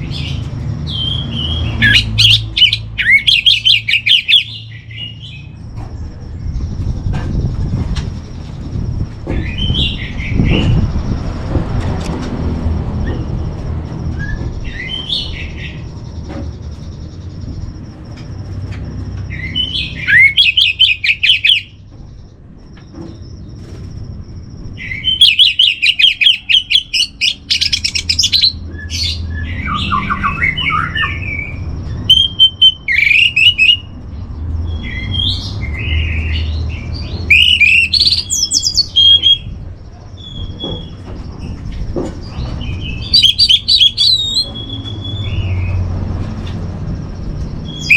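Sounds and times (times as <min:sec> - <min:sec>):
bird singing fluttering phrases: 0:14.1 - 0:45.9.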